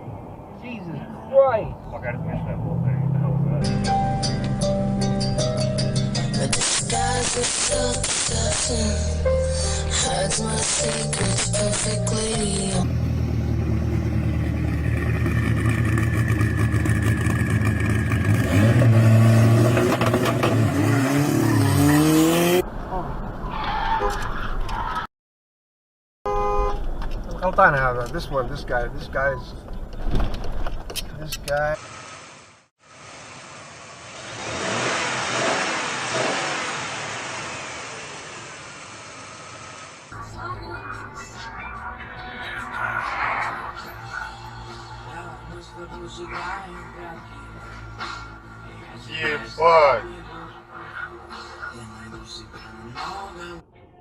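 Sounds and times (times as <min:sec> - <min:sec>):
car engine accelerating: 0:11.8 - 0:23.0, 0:32.9 - 0:53.3
car driving past: 0:32.9 - 0:45.6.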